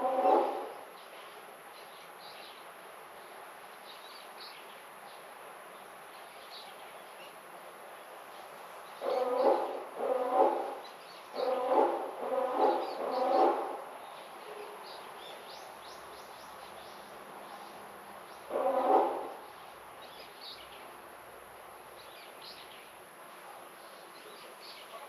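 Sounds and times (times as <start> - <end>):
loud animal calls: 0.0 - 0.7, 9.0 - 10.8, 11.4 - 13.8, 18.5 - 19.4.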